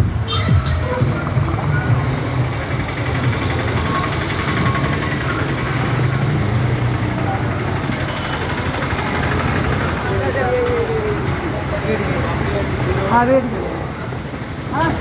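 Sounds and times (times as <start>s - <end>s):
diesel train rumble from on board: 0.8s - 10.4s.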